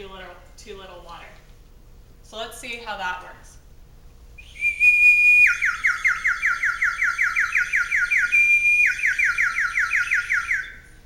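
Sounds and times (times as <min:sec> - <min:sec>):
water whistle warbling trill: 0:04.4 - 0:10.8.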